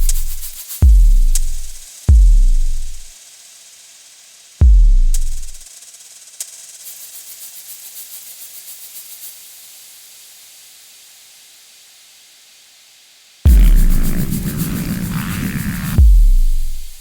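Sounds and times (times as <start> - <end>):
loud electronic music: 0.0 - 3.0, 13.5 - 17.0
hissing white-noise sweep: 0.0 - 3.1, 13.5 - 17.0.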